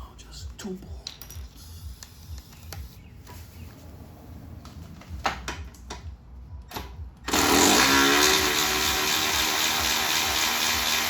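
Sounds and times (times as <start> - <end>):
power tool motor running: 7.3 - 11.0.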